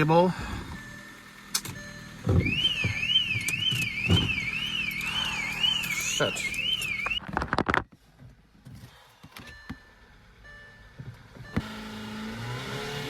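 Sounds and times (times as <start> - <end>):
car starter clicks: 1.5 - 7.2.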